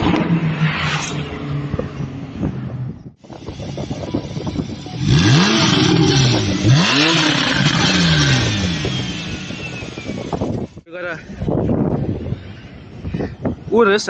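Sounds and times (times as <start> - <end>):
street traffic noise: 0.0 - 14.0
car engine revving: 3.5 - 10.8.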